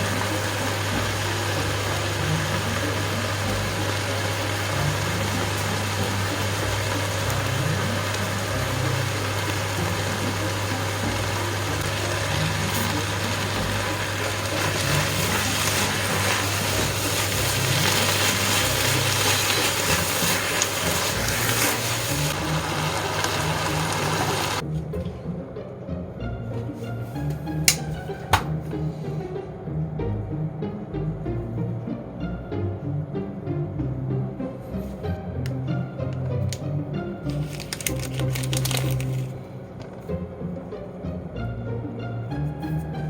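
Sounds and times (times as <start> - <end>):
food sizzling in a pan: 0.0 - 24.6.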